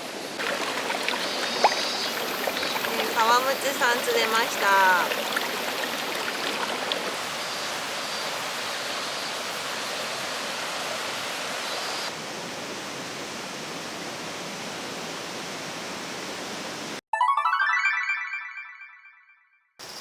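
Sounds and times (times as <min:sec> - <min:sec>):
stream water rushing over rocks: 0:00.4 - 0:12.1.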